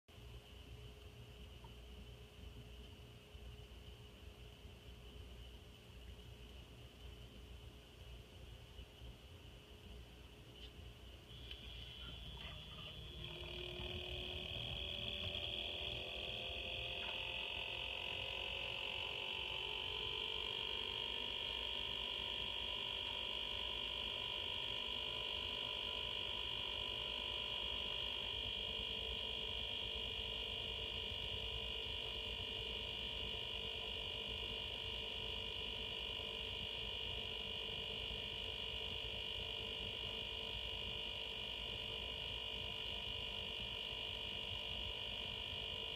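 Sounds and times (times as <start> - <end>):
water pump whining: 11.4 - 28.0.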